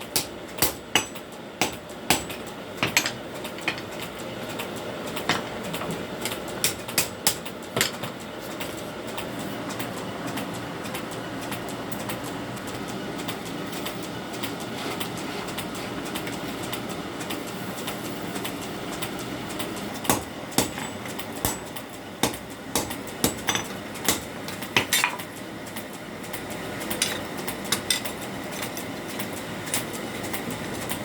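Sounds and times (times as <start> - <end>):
hammer striking steel on anvil: 0.1 - 3.9, 20.1 - 25.2.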